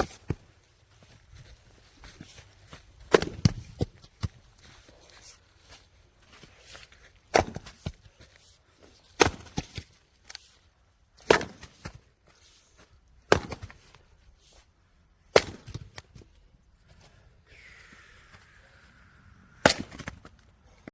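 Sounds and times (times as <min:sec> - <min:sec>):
axe chopping firewood: 0:03.0 - 0:04.3, 0:07.2 - 0:08.1, 0:09.0 - 0:10.4, 0:11.2 - 0:12.0, 0:13.2 - 0:14.0, 0:15.3 - 0:16.2, 0:19.6 - 0:20.4.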